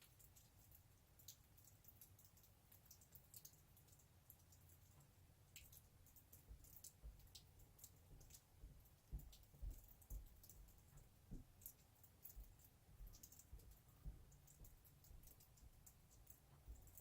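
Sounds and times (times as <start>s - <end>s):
faint irregular clicks: 0.0s - 17.0s
soft low taps: 8.1s - 17.0s.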